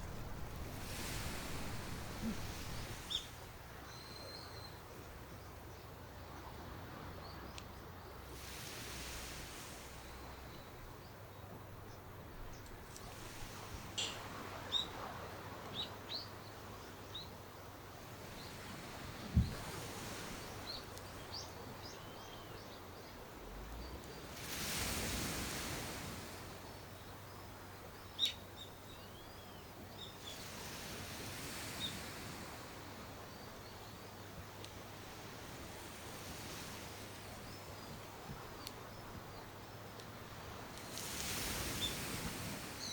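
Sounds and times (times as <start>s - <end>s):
birds chirping: 0.0s - 6.6s, 13.7s - 15.0s.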